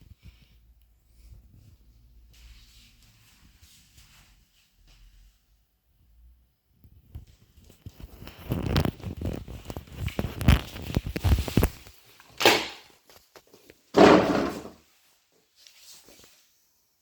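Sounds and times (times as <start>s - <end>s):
scraping or rustling: 7.5s - 12.0s
handling knocks and thumps: 14.0s - 14.8s.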